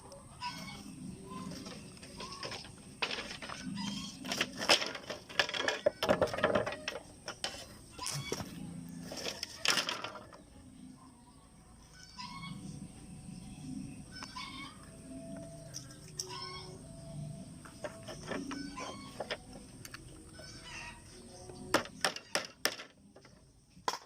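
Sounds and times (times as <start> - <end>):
irregular knocks and clatters: 1.6 - 7.7.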